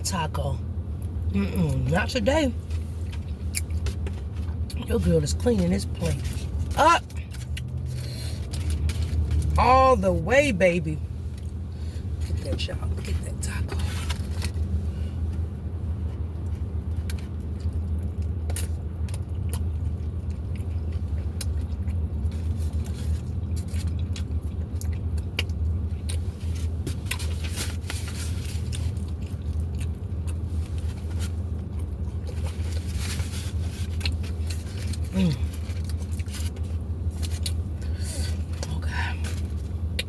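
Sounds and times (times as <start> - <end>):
steady low hum: 0.0 - 40.0
person chewing: 2.7 - 4.8, 6.2 - 9.5, 16.0 - 40.0.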